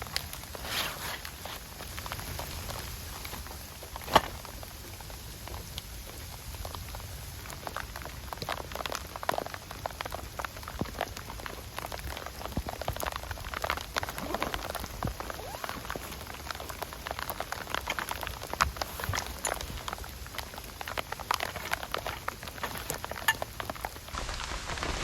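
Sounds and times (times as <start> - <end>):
rain drops ticking: 0.0 - 25.0.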